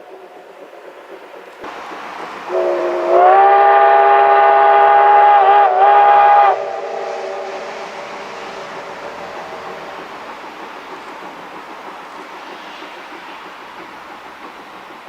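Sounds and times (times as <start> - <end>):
steady rushing hiss: 0.0 - 15.0
steam locomotive whistle: 2.5 - 8.2.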